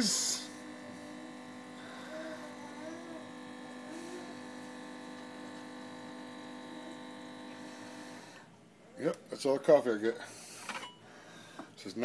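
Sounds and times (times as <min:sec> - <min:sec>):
coffee maker pump humming: 0:00.0 - 0:08.6.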